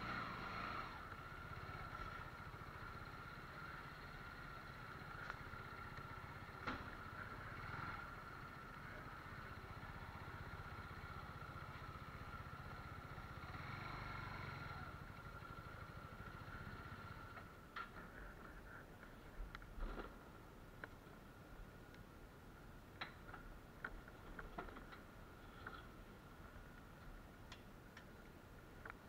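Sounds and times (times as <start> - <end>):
motorcycle engine running: 0.0 - 17.7.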